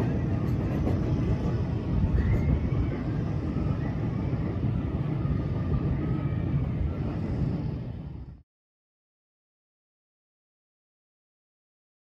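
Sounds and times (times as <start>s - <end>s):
miniature train cars rolling on track: 0.0s - 7.8s.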